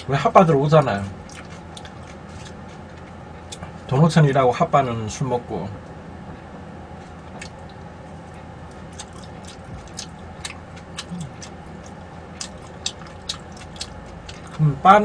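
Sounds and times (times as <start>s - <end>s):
low background hum: 0.0s - 15.0s
mouth chewing food: 0.8s - 3.8s, 7.0s - 14.7s.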